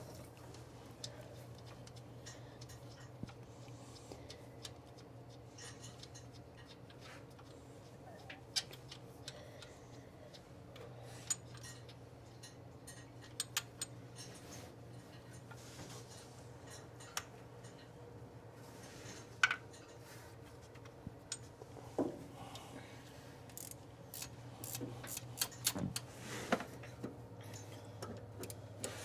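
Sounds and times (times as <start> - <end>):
metallic clicks of hand tools: 23.5 - 26.1.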